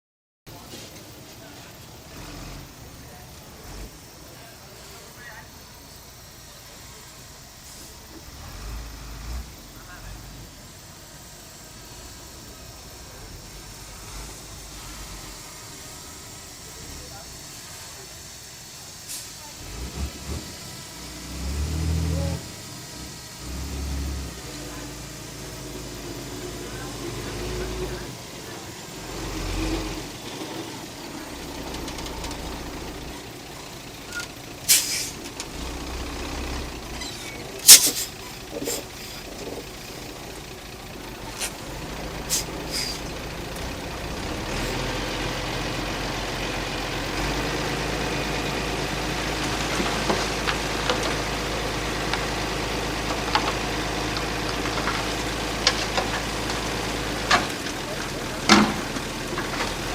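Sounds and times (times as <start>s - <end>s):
heavy machinery diesel engine: 0.5s - 59.9s.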